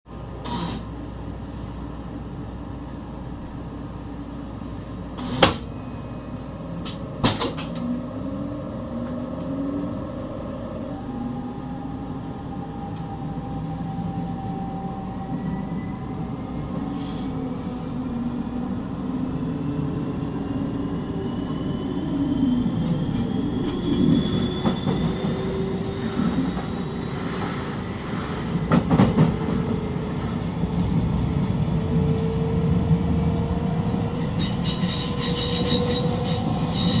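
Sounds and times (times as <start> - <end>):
train running noise: 3.9 - 8.4, 22.7 - 37.0.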